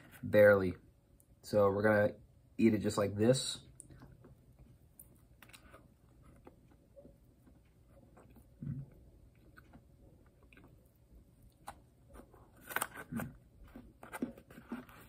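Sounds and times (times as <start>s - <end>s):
cookie biting and chewing: 5.0s - 15.0s.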